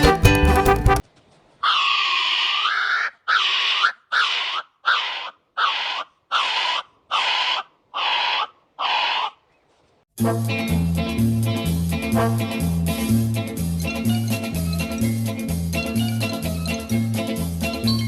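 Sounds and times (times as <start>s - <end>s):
animal raspy calls: 1.6s - 9.5s.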